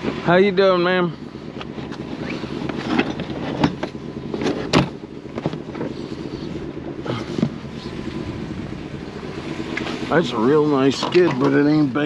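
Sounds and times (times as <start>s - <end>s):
vehicle rumble: 0.0s - 12.0s
sharp knocks and rattles: 1.6s - 6.0s.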